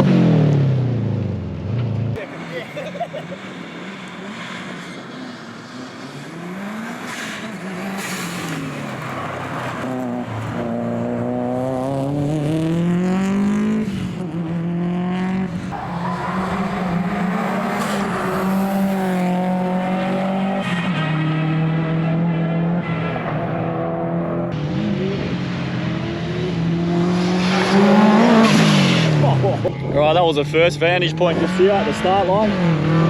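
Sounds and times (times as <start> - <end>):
rally car engine at high revs: 0.0 - 33.0
tyre squeal: 15.7 - 19.2.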